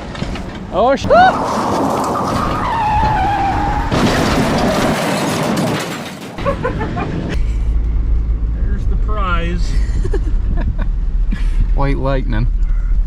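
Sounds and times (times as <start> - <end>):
vehicle tires spinning and whining: 0.0 - 13.0.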